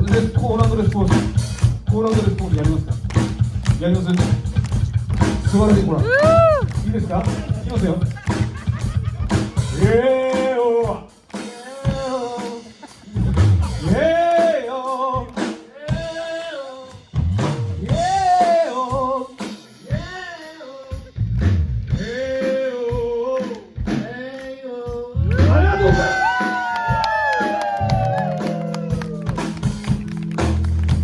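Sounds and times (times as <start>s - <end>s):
kick drum thumps: 0.0s - 10.0s
person singing: 9.2s - 17.1s, 17.8s - 21.2s, 24.4s - 26.7s, 27.4s - 29.6s.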